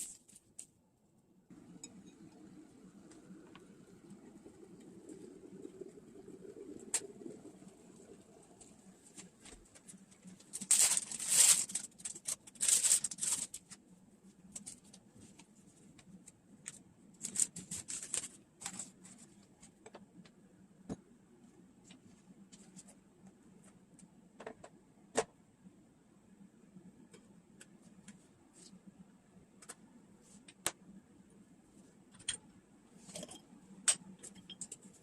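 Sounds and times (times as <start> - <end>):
rustling of things handled: 9.1 - 19.8.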